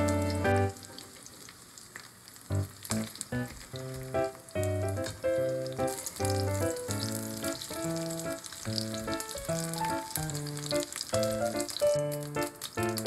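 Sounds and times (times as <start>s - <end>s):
background music: 0.0s - 0.8s, 3.9s - 13.0s
pancake sizzling in oil: 0.0s - 13.0s.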